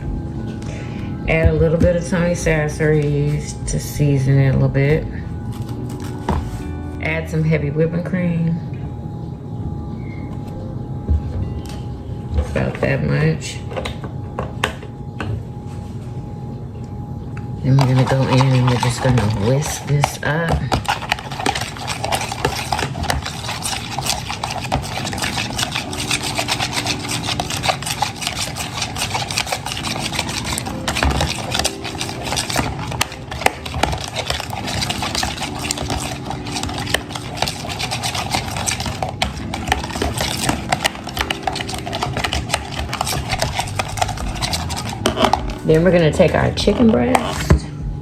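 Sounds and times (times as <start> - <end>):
whisk scraping against bowl: 17.7 - 47.6.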